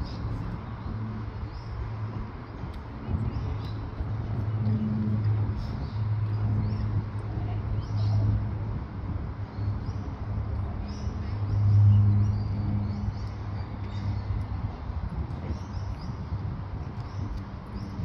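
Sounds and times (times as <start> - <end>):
birds chirping: 9.4 - 18.0.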